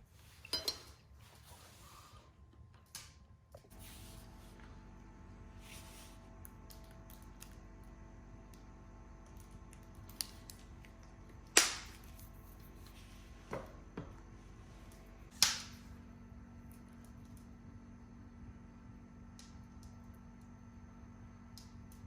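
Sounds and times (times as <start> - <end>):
fireplace wood popping: 11.4 - 12.2, 14.9 - 15.9.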